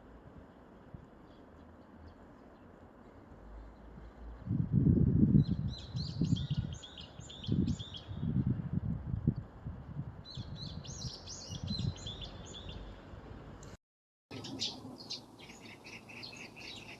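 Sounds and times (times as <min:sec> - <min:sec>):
small birds chirping: 0:05.4 - 0:08.3, 0:10.3 - 0:12.9, 0:14.3 - 0:16.9.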